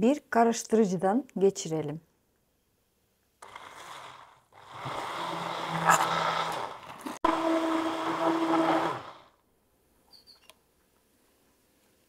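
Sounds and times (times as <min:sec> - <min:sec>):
electric blender running: 0:03.4 - 0:09.4.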